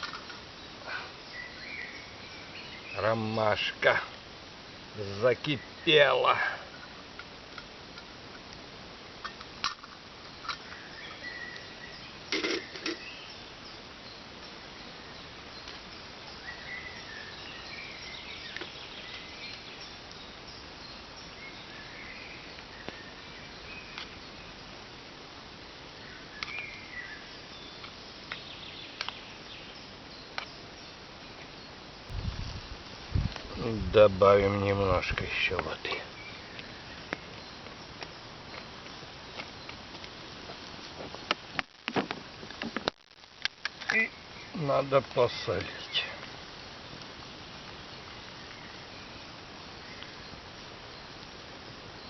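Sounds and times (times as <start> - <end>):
steady hiss: 0.0 - 52.0
faint bird chirps: 0.5 - 4.0, 10.3 - 24.7, 25.9 - 32.7, 43.8 - 46.3, 47.2 - 52.0.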